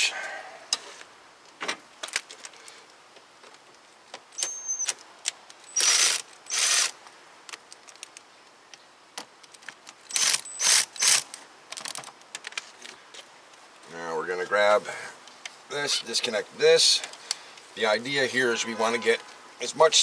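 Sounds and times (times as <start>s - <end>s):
power tool spinning screws: 5.7s - 7.0s, 10.1s - 11.2s.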